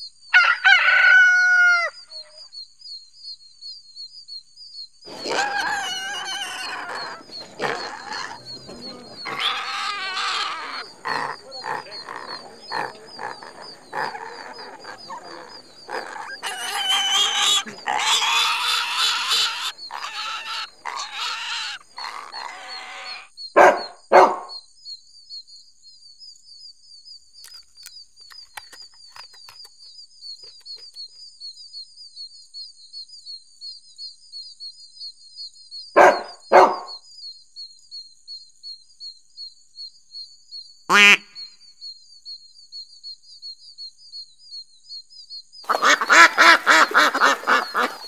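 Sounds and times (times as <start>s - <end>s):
dog barking: 5.1s - 22.6s, 23.6s - 24.5s, 36.0s - 36.9s
pig grunting: 5.1s - 23.2s, 45.7s - 48.0s.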